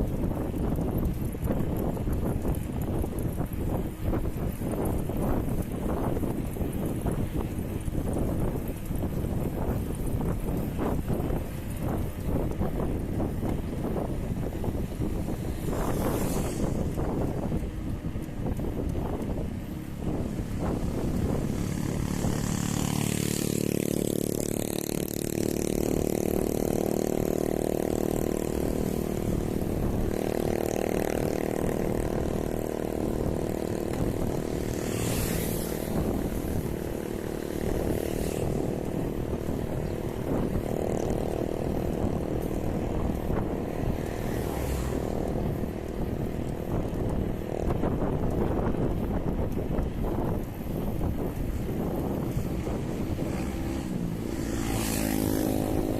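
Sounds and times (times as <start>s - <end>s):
wind noise on microphone: 0.0s - 55.9s
engine drone: 14.7s - 46.8s.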